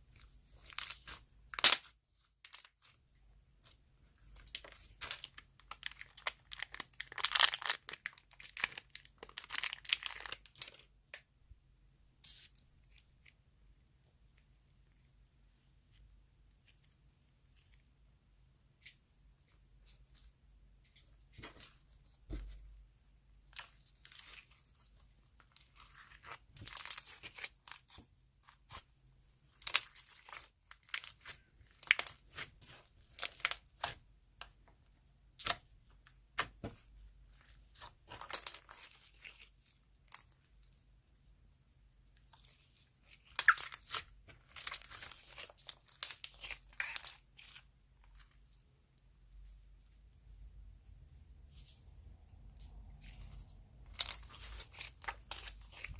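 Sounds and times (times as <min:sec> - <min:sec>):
slime crackling and popping: 0:25.3 - 0:28.9, 0:29.5 - 0:34.0, 0:37.6 - 0:40.4, 0:42.4 - 0:47.7, 0:53.8 - 0:55.9.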